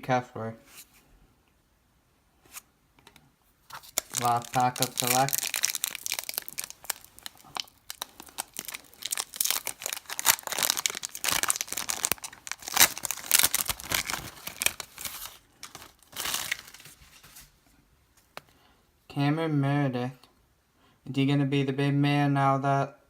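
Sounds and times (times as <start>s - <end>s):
wrapper being torn and crinkled: 3.7s - 17.4s.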